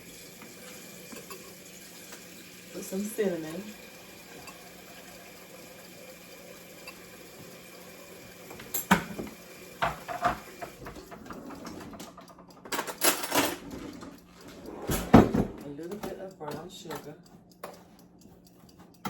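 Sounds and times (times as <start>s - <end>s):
containers and utensils clinking: 0.4s - 3.6s, 8.5s - 14.1s.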